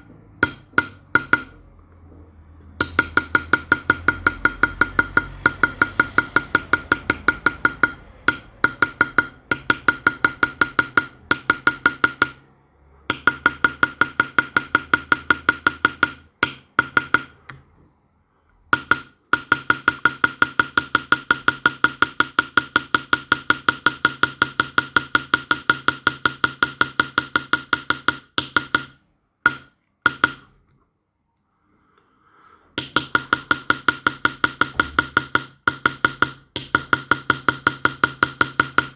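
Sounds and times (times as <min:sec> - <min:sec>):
hammer tapping on metal punch: 0:00.0 - 0:17.6, 0:18.6 - 0:30.6, 0:32.8 - 0:38.9.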